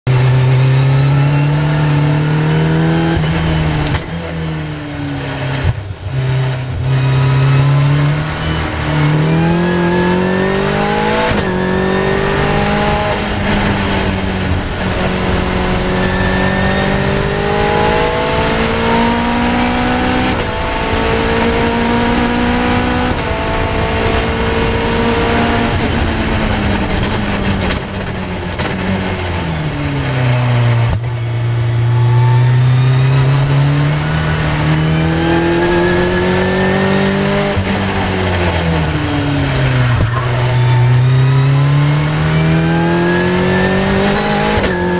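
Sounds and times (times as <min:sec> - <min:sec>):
race car engine at full throttle: 0:00.0 - 0:44.9.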